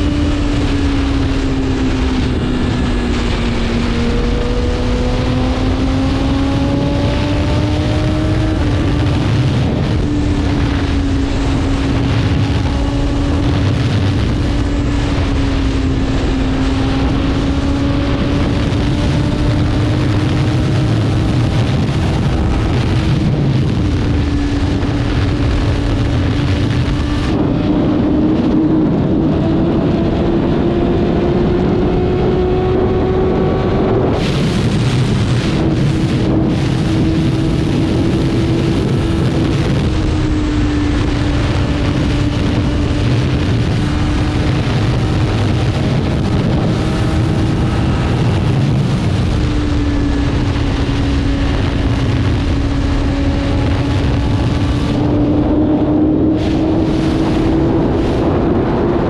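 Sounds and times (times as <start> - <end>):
motorcycle engine running: 0.0 - 59.0
wind rush: 0.0 - 59.0.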